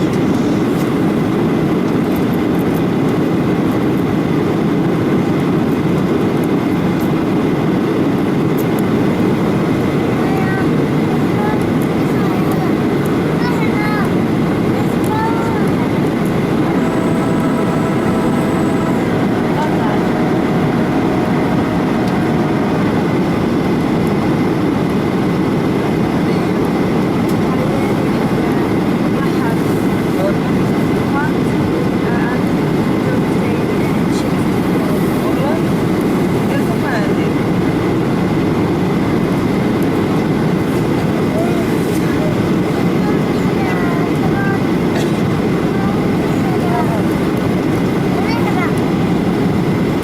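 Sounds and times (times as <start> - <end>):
airliner cabin engine drone: 0.0 - 28.6
airliner cabin rumble: 14.3 - 25.6.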